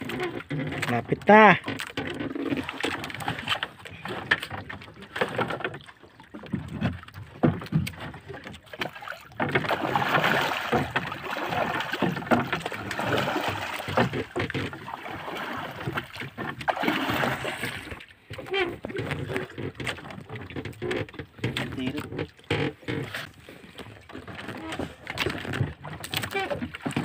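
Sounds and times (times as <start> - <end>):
water splashing against boat hull: 0.0 - 27.0
knocks on wooden canoe: 8.8 - 14.9.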